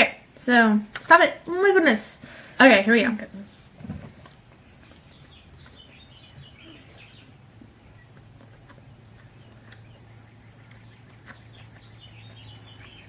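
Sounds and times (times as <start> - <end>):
low steady hum: 0.0 - 13.0
faint bird chirps: 4.6 - 8.2.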